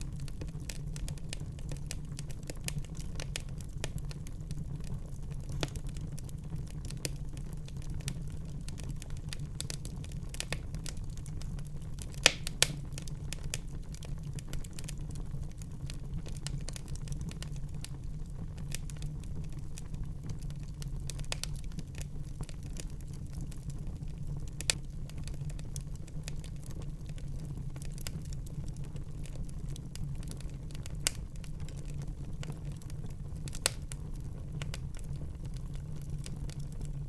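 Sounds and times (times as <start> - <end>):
wood fire crackling: 0.0 - 37.0
sharp fire pops: 12.1 - 13.1.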